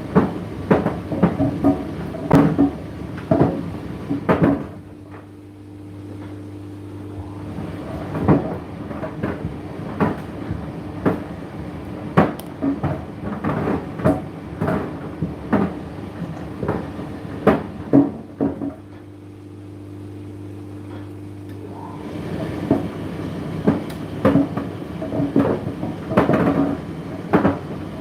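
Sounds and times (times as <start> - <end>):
load knocking in dryer drum: 0.0 - 4.8, 7.7 - 11.3, 12.1 - 18.8, 23.6 - 28.0
tumble dryer motor hum: 0.0 - 28.0.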